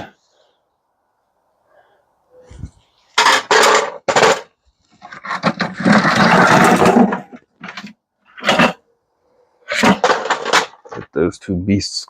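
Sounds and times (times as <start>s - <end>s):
metal parts clattering and rattling: 3.1s - 8.9s, 9.7s - 11.1s.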